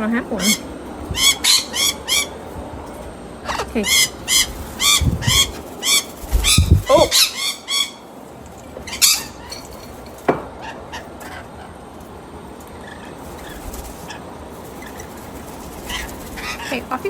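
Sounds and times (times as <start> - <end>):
bird squawk: 0.3 - 2.5, 3.4 - 8.1, 8.8 - 9.8, 12.8 - 17.0.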